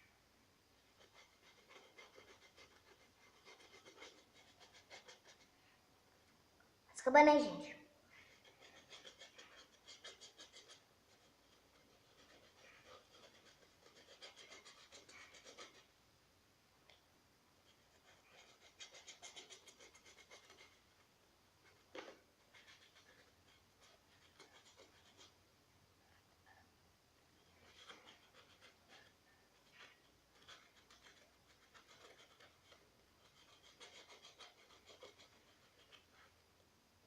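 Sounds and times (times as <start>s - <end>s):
paintbrush scratching on plastic: 0.8s - 5.6s, 8.2s - 15.9s, 17.6s - 21.0s, 21.6s - 25.4s, 27.4s - 36.4s.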